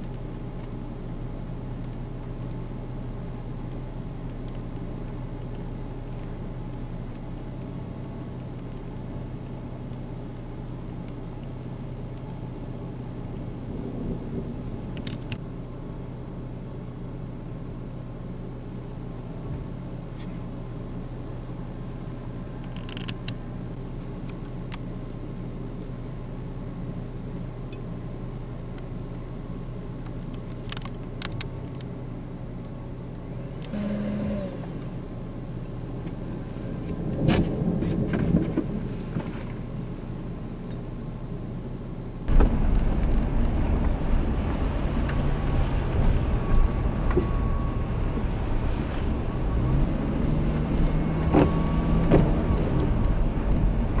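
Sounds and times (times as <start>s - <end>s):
vehicle engine idling: 0.0s - 54.0s
wind: 0.0s - 54.0s
car engine rising in pitch: 33.4s - 35.1s, 42.3s - 54.0s
rain: 42.3s - 54.0s.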